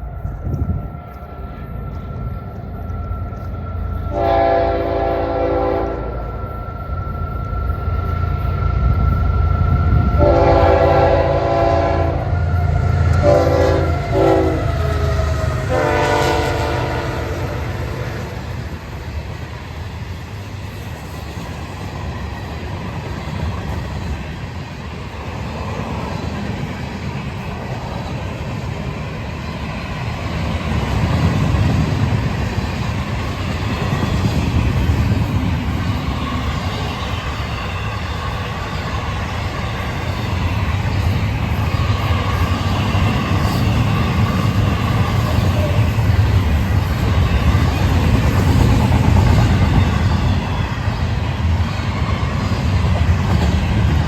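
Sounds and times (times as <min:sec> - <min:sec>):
freight train rumbling past: 0:00.0 - 0:54.0
locomotive multi-chime horn: 0:00.6 - 0:09.1, 0:09.9 - 0:18.6.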